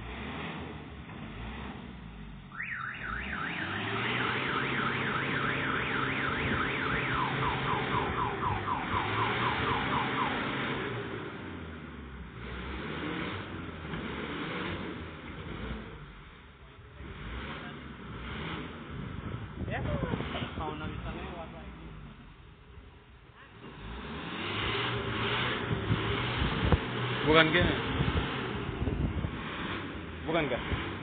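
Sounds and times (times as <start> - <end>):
engine revving: 0.0 - 22.4, 23.4 - 31.0
electronic vehicle alarm: 2.5 - 10.8.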